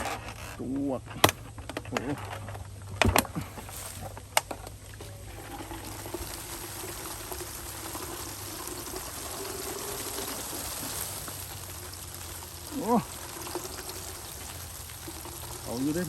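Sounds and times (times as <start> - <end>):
water pouring from bucket: 3.2 - 16.0.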